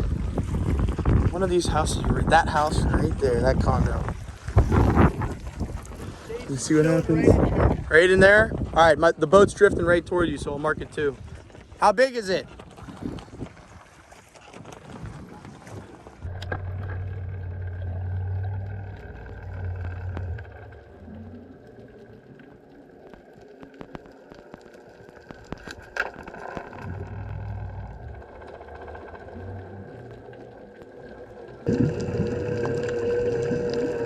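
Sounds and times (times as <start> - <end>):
water sounds: 0.0 - 34.0
outboard engine hum: 12.5 - 34.0
scattered clicks: 18.6 - 31.6.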